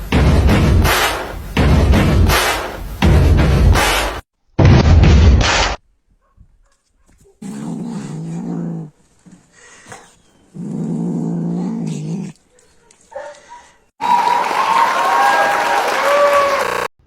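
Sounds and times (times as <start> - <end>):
animal growling: 7.4 - 12.4
loud noise: 14.0 - 16.9.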